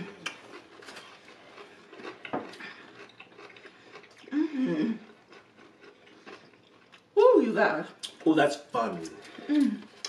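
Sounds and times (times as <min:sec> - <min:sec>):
chewing crispy food: 0:00.0 - 0:07.3
person humming mmm: 0:04.3 - 0:05.1.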